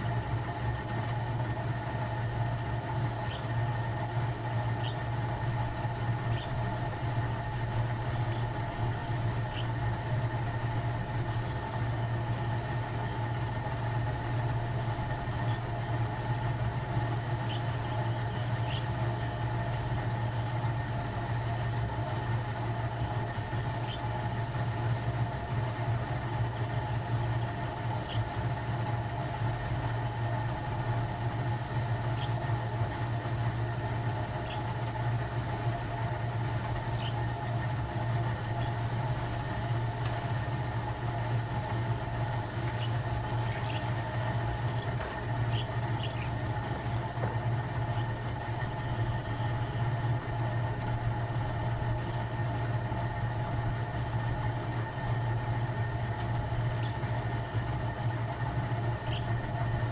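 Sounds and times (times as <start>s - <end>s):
mechanical drone with low hum: 0.0s - 59.9s
faint high ticks: 34.4s - 35.0s, 36.5s - 40.4s, 50.7s - 51.2s, 54.2s - 54.6s.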